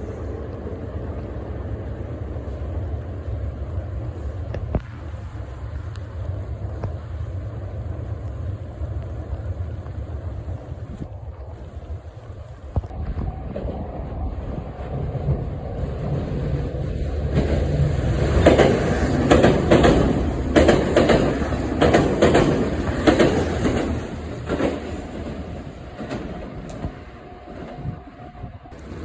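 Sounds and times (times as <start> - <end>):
train rumble: 0.0 - 29.0
train wheels clacking over rail joints: 15.9 - 27.8, 28.7 - 29.0.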